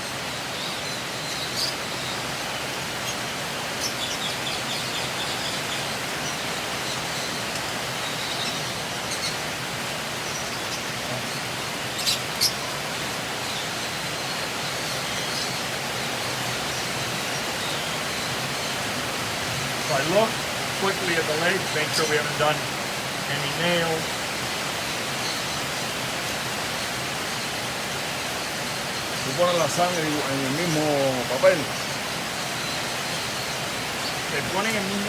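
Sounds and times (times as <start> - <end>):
background hiss: 0.0 - 35.0
lovebirds chirping: 0.0 - 35.0.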